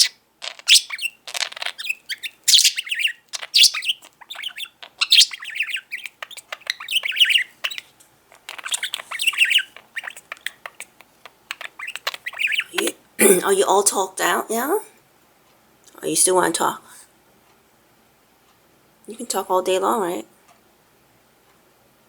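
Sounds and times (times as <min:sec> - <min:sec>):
budgerigar chattering: 0:00.0 - 0:13.0.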